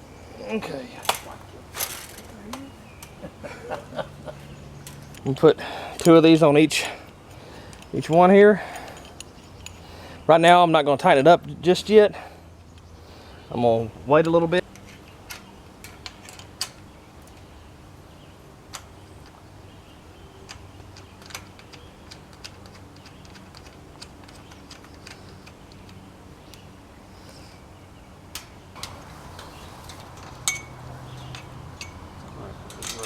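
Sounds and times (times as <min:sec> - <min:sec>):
sharp metal clink: 0:30.4 - 0:32.0.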